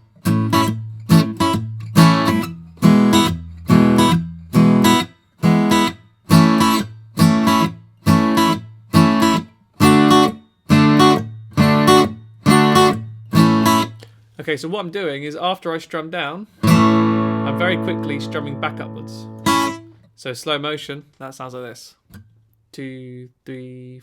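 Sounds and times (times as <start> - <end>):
guitar strumming reggae rhythm: 0.2 - 14.1, 16.6 - 20.0.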